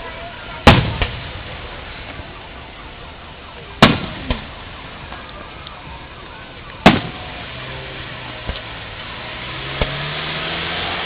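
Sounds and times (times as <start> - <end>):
smaller firework bang: 0.6 - 1.5, 3.8 - 4.6, 6.8 - 7.3
firework shells booming: 0.6 - 2.3, 3.8 - 5.3, 6.8 - 7.5.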